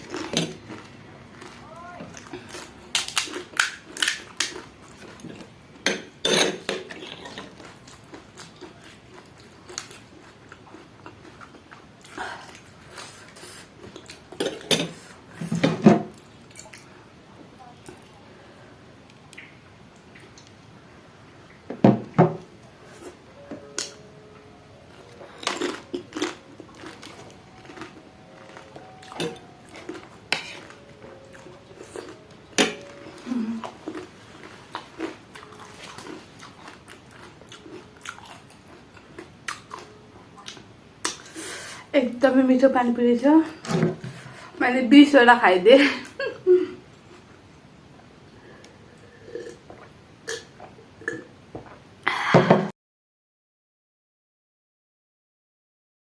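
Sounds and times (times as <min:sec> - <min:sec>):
food crunching: 0:00.0 - 0:14.7, 0:24.9 - 0:41.4.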